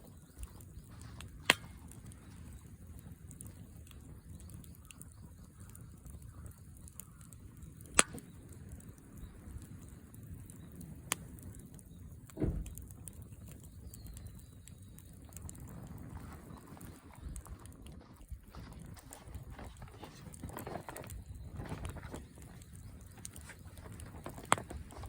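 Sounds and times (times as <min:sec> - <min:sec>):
fire popping: 0:00.0 - 0:25.0
wood fire burning: 0:00.0 - 0:25.0
dull thump: 0:12.4 - 0:12.8.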